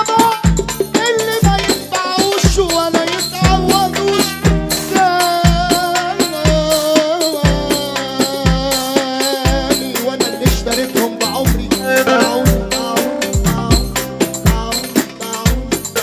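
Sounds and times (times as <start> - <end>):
heavy low drum beat: 0.0 - 16.0
rattling shaker percussion: 0.0 - 16.0
wavering melody line: 11.8 - 13.6.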